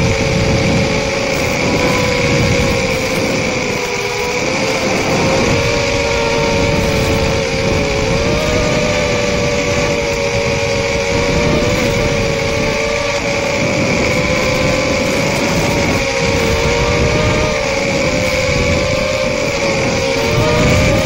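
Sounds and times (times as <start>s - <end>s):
drone propellers whining: 0.0s - 21.0s
rushing noise: 0.0s - 21.0s.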